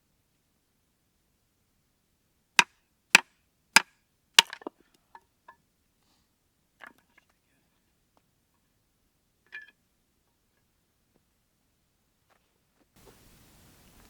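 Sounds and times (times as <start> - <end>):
axe chopping firewood: 3.8 - 4.7.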